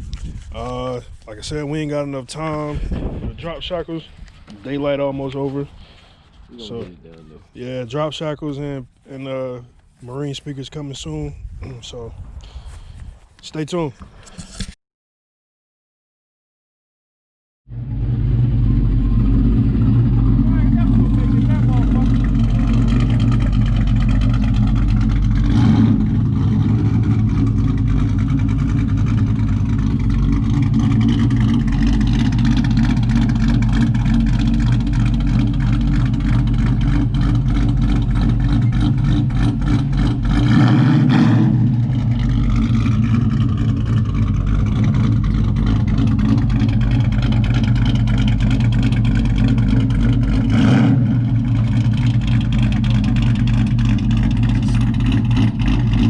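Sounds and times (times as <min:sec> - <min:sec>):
pickup truck engine revving: 0:17.7 - 0:56.0.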